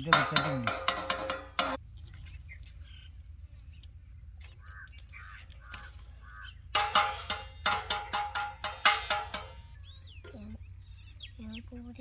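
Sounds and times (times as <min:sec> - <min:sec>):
bird calling: 0:02.2 - 0:07.6.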